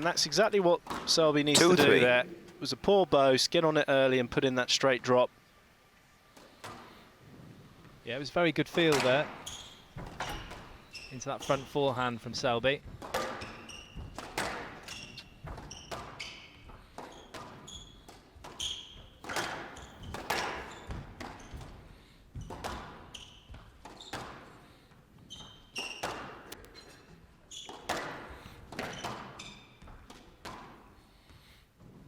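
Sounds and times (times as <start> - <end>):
shoes squeaking on court floor: 9.4 - 11.7, 14.9 - 19.2, 19.8 - 21.6, 22.4 - 24.4, 25.2 - 28.0, 28.8 - 30.0.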